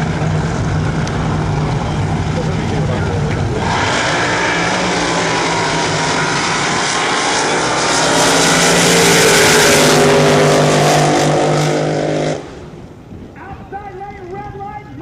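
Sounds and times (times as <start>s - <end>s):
racing boat engines howling: 0.0s - 13.1s.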